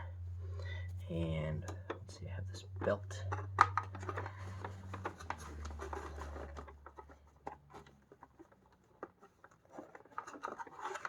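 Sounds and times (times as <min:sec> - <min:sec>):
plastic parts clicking and rustling: 0:03.3 - 0:11.0.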